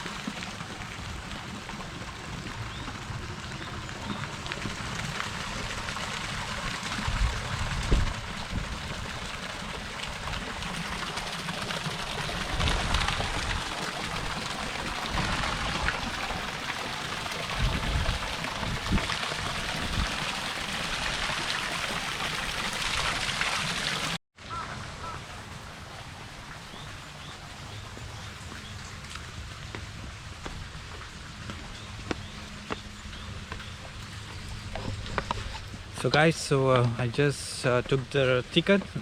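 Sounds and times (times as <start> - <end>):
wind buffeting microphone: 5.7 - 9.4, 17.5 - 20.2
steady outdoor hiss: 24.4 - 39.0.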